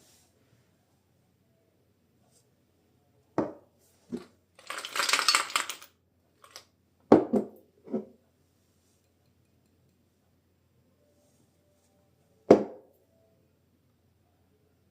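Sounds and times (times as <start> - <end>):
dishes knocking and clinking: 6.4 - 8.1.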